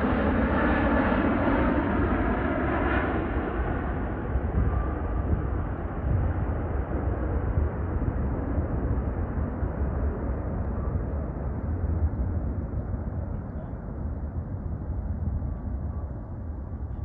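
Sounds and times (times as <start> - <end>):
jet engines rumbling: 0.0 - 16.9.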